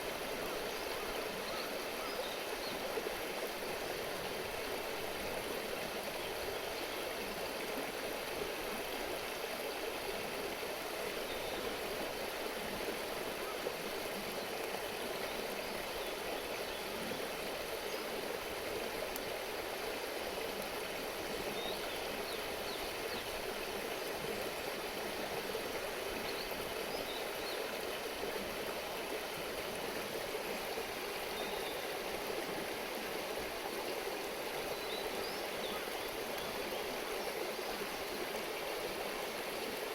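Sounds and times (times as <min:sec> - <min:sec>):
river babbling over stones: 0:00.0 - 0:39.9.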